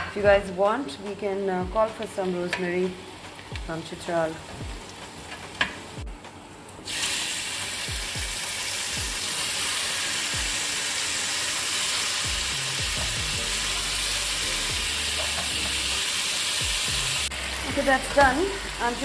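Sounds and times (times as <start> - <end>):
meat sizzling in a frying pan: 6.9 - 19.0.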